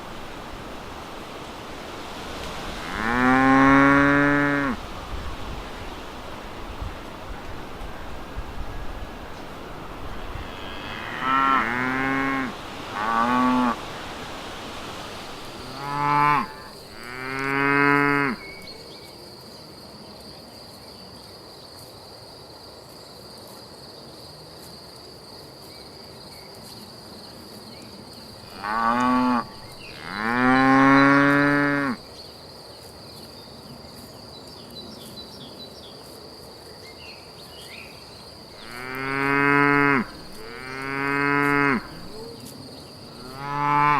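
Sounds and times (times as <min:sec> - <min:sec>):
cows mooing: 0:02.8 - 0:04.8, 0:10.4 - 0:13.8, 0:15.6 - 0:18.6, 0:28.5 - 0:32.0, 0:38.6 - 0:42.3, 0:43.2 - 0:43.9
high insect trill: 0:15.1 - 0:43.9.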